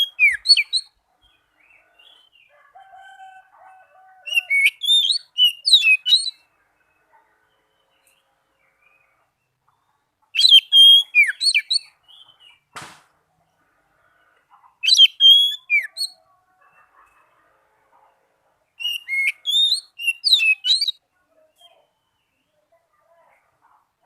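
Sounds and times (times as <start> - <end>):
bird singing whistled notes: 0.0 - 1.4, 4.3 - 6.5, 10.4 - 12.6, 14.8 - 16.2, 18.8 - 21.0.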